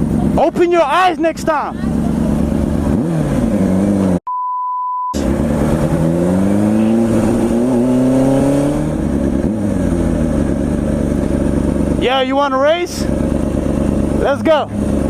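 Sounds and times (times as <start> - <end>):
motorcycle engine running: 0.0 - 4.2, 5.2 - 15.0
censor bleep: 4.3 - 5.2.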